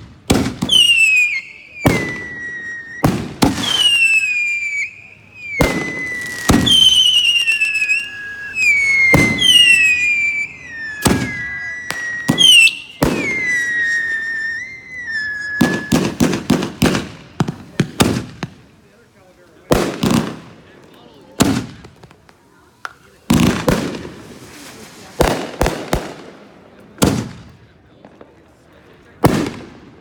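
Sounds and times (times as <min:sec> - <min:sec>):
whistling firework shots: 0:00.0 - 0:18.6, 0:29.0 - 0:30.0
firework pops: 0:00.0 - 0:18.7, 0:19.6 - 0:26.4, 0:27.0 - 0:28.4, 0:29.2 - 0:30.0
firework bangs: 0:00.0 - 0:19.0, 0:19.6 - 0:28.4, 0:29.0 - 0:30.0.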